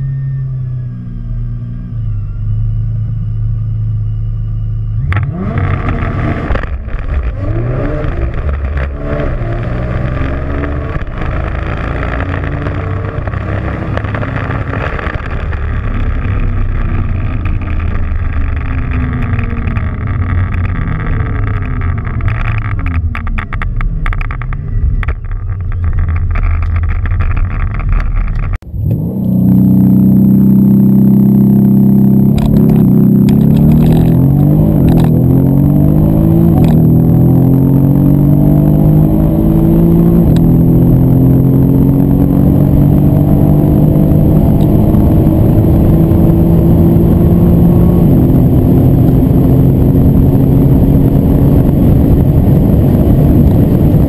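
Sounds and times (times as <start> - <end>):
car engine accelerating hard: 0.0 - 54.0
gear changes: 0.0 - 54.0
engine held at high revs: 4.9 - 23.5, 28.6 - 54.0.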